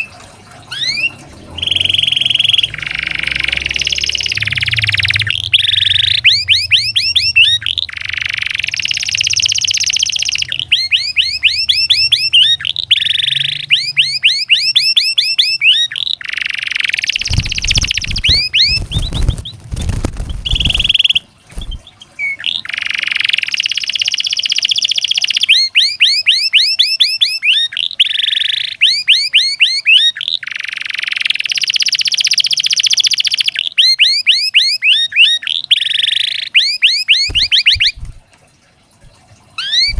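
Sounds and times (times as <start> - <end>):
canary singing: 0.0 - 38.2, 39.6 - 39.9.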